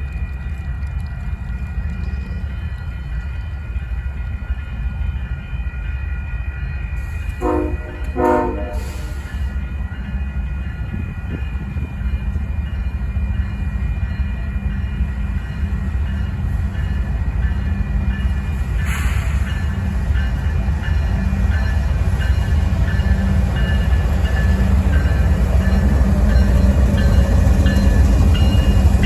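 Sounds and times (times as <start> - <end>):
train rumbling: 0.0 - 29.0
train horn blasts: 7.3 - 9.3.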